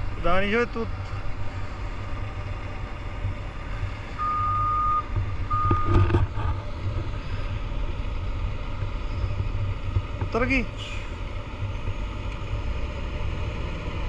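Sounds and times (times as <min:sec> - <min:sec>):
truck engine rumbling: 0:00.0 - 0:14.0
reversing alarm beeps: 0:04.2 - 0:06.0.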